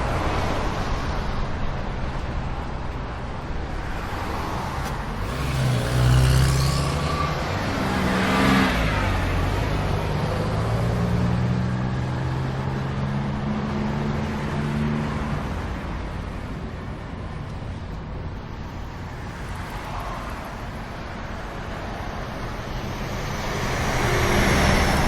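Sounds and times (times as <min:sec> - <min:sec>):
vehicles passing: 0:00.0 - 0:25.0.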